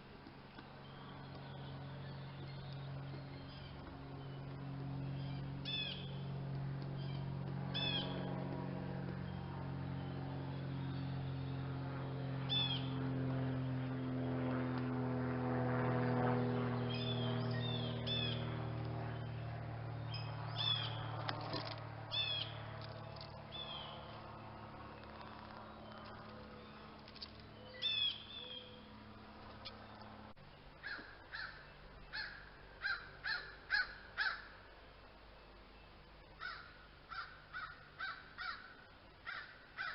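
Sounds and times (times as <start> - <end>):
birds chirping: 0.0 - 14.1, 16.5 - 39.9
steady low hum: 0.0 - 39.9
loud repeated bird calls: 5.2 - 6.2, 7.0 - 8.2, 22.1 - 22.6, 25.8 - 28.9, 30.8 - 34.7, 36.3 - 39.9.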